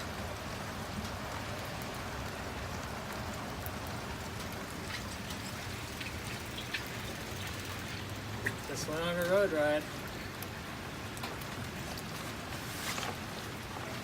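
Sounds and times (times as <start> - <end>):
steady rain: 0.0 - 14.0
faint drops ticking: 3.5 - 9.4.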